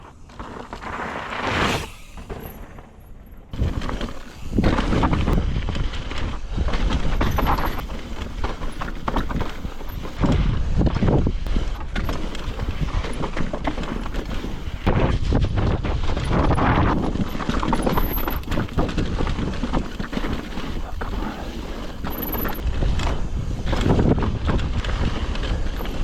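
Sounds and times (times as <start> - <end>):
heavy rumble: 0.0 - 6.4
bike rattling over bumps: 0.0 - 26.0
bike tyres crunching on rock: 0.0 - 26.0.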